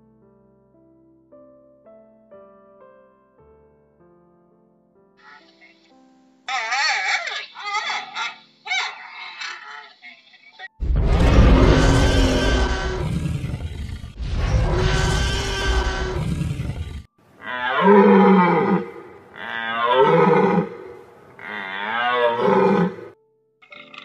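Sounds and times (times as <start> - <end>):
deer calls: 6.5 - 10.7
dinosaur roars: 10.9 - 23.1.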